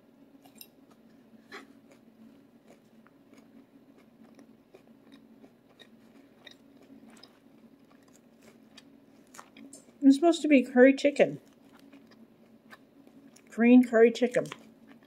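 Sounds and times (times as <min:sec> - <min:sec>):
low steady hum: 0:00.0 - 0:15.0
faint chewing: 0:00.4 - 0:10.0, 0:11.4 - 0:13.5, 0:14.2 - 0:15.0.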